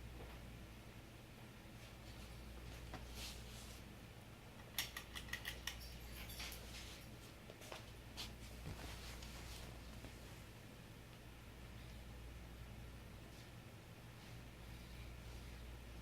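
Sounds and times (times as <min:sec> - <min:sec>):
ceiling fan motor humming: 0:00.0 - 0:16.0
light metallic clicks and rattles: 0:04.6 - 0:06.7.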